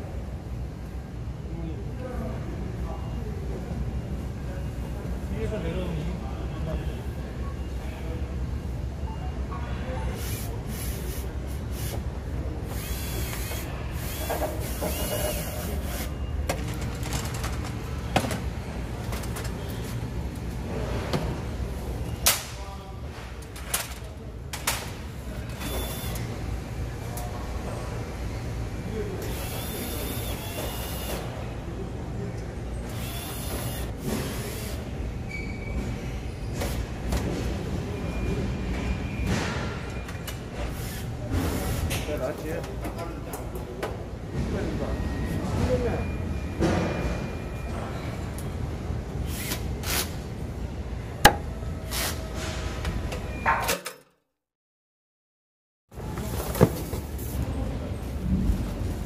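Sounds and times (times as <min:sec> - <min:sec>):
cordless drill motor whine: 0:29.4 - 0:31.1.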